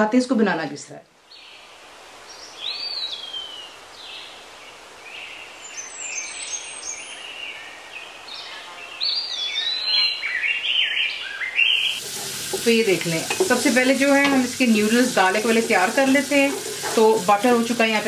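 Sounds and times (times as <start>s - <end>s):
background hiss: 0.1s - 18.0s
birds chirping and whistling: 5.2s - 12.0s.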